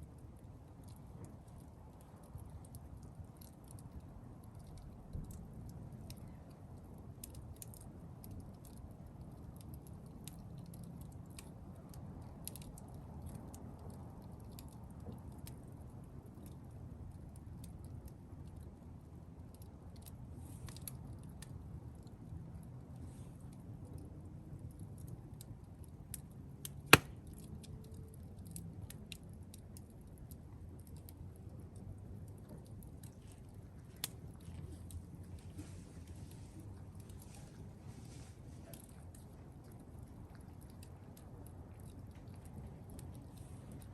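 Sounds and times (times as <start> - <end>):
campfire crackling: 0.0 - 43.9
loud pop from fire: 26.9 - 27.3.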